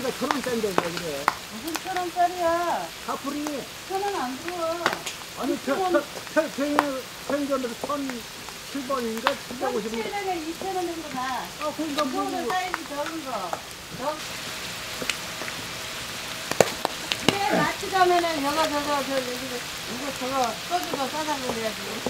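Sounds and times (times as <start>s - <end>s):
people talking: 0.0s - 14.2s, 17.2s - 22.0s
pork sizzling on griddle: 0.0s - 22.0s.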